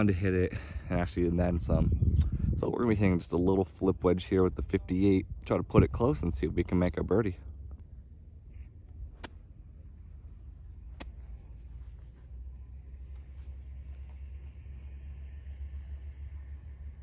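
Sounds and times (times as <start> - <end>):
low steady rumble: 0.0 - 17.0
faint high chirps: 7.8 - 17.0.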